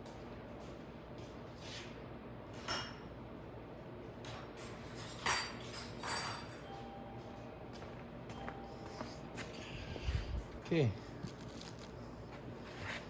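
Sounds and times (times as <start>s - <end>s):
metal tools clinking and rattling: 4.6s - 6.7s.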